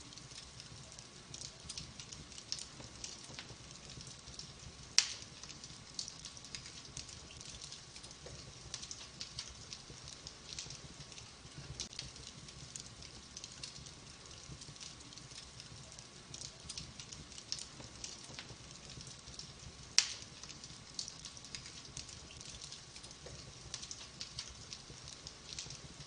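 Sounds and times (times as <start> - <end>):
wood fire crackling: 0.0 - 26.0
sharp pop of fire: 5.0 - 5.3, 20.0 - 20.3.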